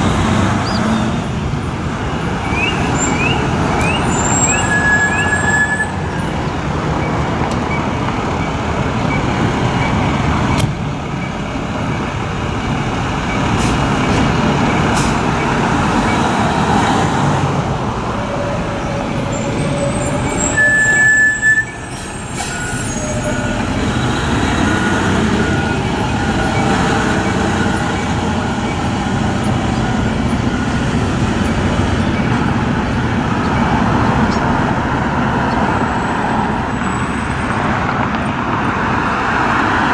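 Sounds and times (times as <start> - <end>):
diesel engines running: 0.0 - 39.9
repeating backup alarm beeps: 2.1 - 6.3, 19.4 - 34.0.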